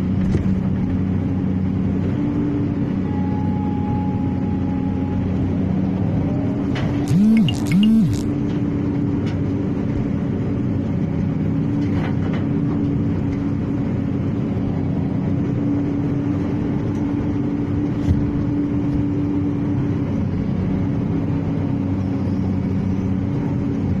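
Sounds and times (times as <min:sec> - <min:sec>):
excavator engine humming: 0:00.8 - 0:08.5
rising and falling tones: 0:07.1 - 0:08.3
sharp click: 0:07.1 - 0:08.3.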